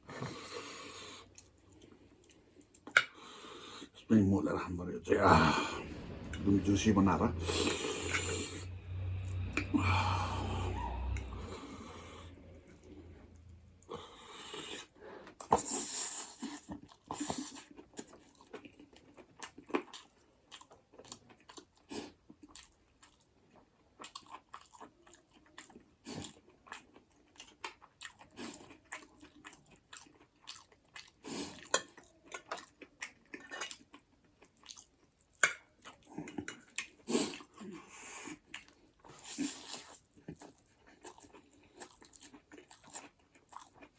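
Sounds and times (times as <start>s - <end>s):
wet chewing and mouth smacks: 16.3s - 37.6s, 38.3s - 43.9s.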